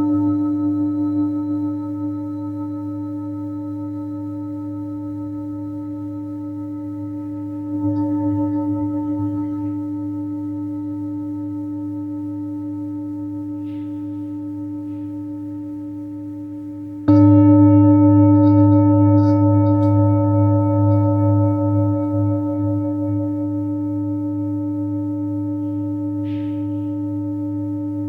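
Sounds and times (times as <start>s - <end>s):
singing bowl ringing: 0.0s - 28.0s.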